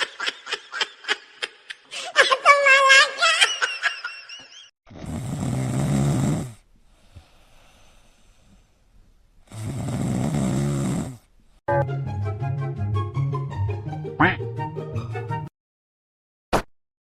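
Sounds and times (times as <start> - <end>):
loud rattling snores: 4.9 - 6.6, 9.5 - 11.3
quiet breathing: 6.4 - 10.0.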